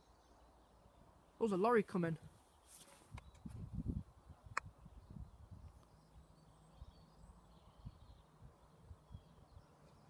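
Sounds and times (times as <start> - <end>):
faint bird chirps: 4.4 - 10.0.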